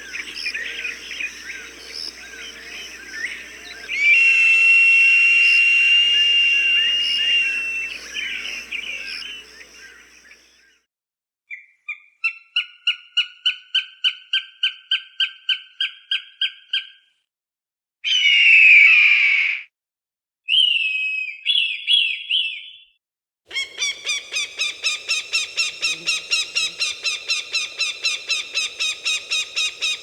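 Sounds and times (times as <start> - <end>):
falcon kek calls: 0.0 - 10.0, 23.5 - 30.0
long high-pitched whistle: 3.6 - 9.5
falcon harsh scream: 3.9 - 8.8
small bird chirps: 23.5 - 30.0.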